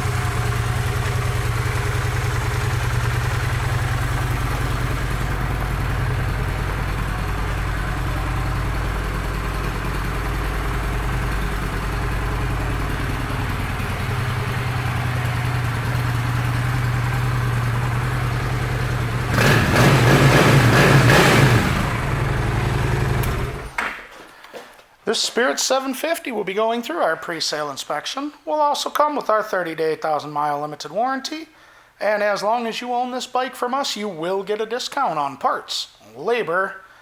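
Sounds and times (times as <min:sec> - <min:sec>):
motorcycle engine idling: 0:00.0 - 0:23.8
motorcycle engine revving: 0:00.0 - 0:23.8.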